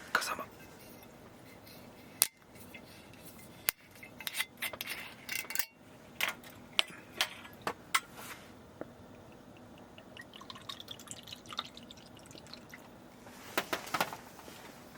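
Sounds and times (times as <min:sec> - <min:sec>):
glass ice and bottle clinking: 0:09.3 - 0:12.7.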